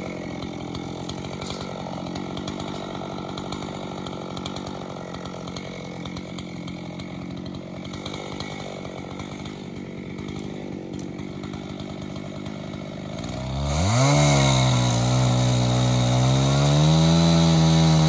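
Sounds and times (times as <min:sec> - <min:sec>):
chainsaw idling and revving: 0:00.0 - 0:18.0.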